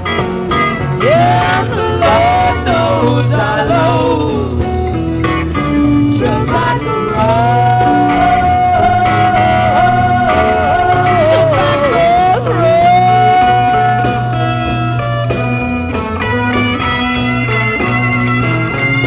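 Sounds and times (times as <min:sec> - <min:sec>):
electric guitar bending notes: 0:00.0 - 0:19.0
psychedelic rock band playing: 0:00.0 - 0:19.0.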